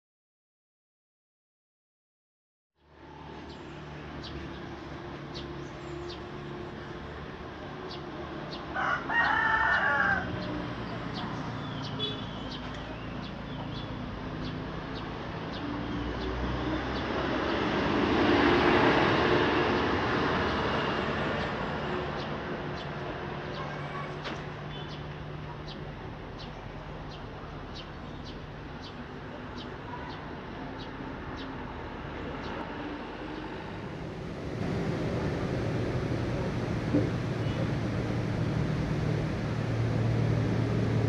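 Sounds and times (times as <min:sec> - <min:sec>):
rooster crowing: 0:08.7 - 0:10.6
rushing noise: 0:32.7 - 0:41.0
steady low hum: 0:34.2 - 0:41.0.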